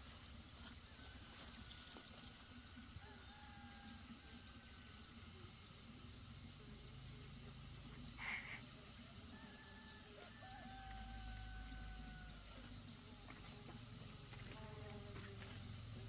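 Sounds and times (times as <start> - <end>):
insects buzzing and chirping: 0.0 - 16.0.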